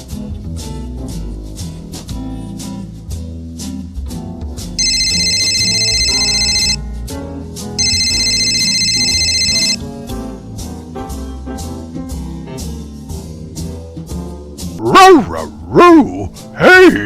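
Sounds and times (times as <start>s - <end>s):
jazzy background music: 0.0s - 4.8s, 10.0s - 14.8s
electronic phone ringtone: 4.8s - 6.8s, 7.8s - 9.8s.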